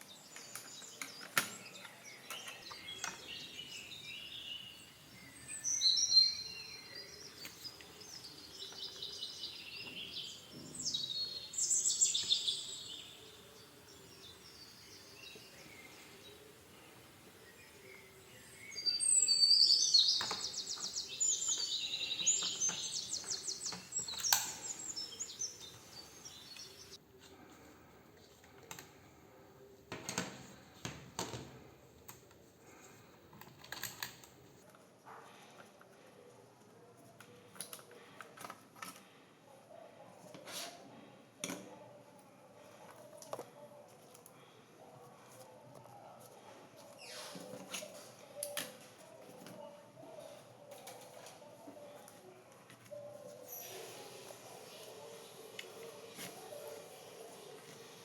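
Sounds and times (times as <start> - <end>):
birds chirping and trilling: 0.0 - 28.0.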